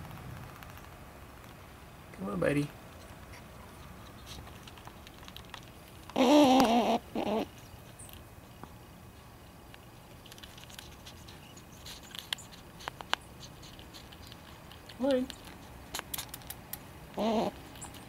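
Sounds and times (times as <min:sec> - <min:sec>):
clicks and patter at feeder: 0:03.7 - 0:06.2, 0:07.8 - 0:16.9
squirrel warbling call: 0:06.1 - 0:07.6, 0:17.1 - 0:18.0.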